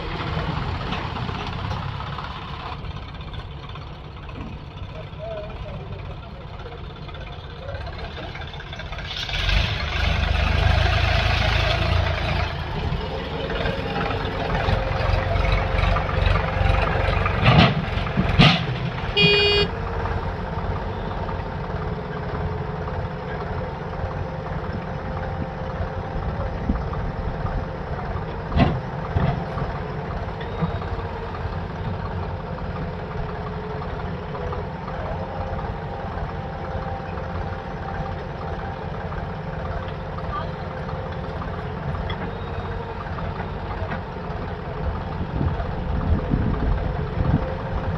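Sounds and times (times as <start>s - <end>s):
heavy machinery diesel engine running: 0.0s - 47.9s
high toot: 19.2s - 19.8s.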